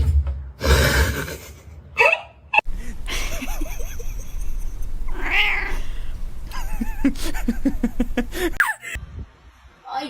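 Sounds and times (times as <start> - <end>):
cat chirping calls: 4.8 - 6.3
cat meowing: 5.0 - 6.2.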